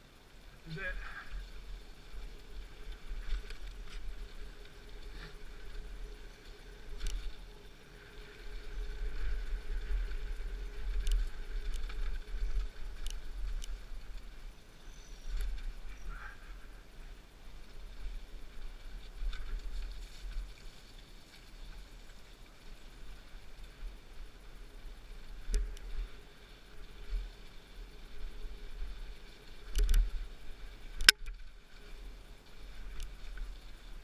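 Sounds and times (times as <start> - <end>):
wind and tyres rolling rumble: 0.0 - 34.0
bike clicks and rattles: 8.6 - 14.3, 29.6 - 30.2.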